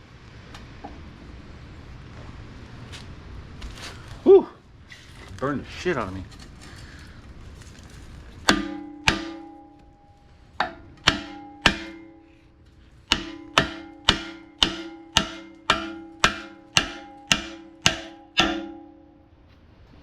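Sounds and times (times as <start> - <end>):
hammer blows on steel: 8.5 - 19.2.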